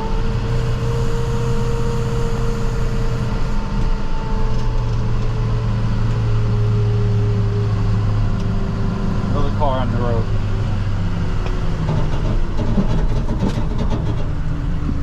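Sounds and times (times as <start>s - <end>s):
steady whine: 0.0s - 11.6s
truck engine drone: 0.0s - 15.0s.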